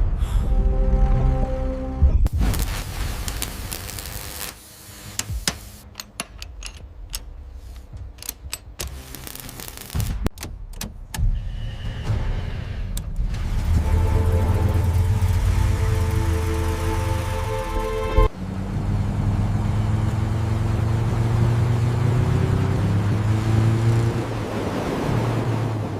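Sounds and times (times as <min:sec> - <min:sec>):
music: 0:00.0 - 0:02.4, 0:05.1 - 0:18.3
low rumble: 0:00.0 - 0:04.1, 0:11.3 - 0:19.4
sharp clicks and knocks: 0:05.2 - 0:11.3.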